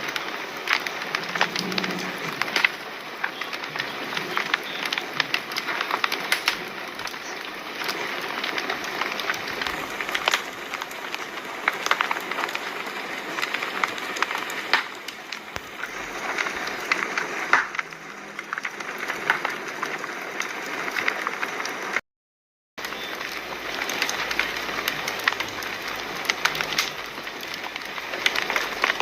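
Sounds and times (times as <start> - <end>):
hiss of flames: 0.0 - 21.9
fire popping and snapping: 0.0 - 22.0, 22.8 - 29.0.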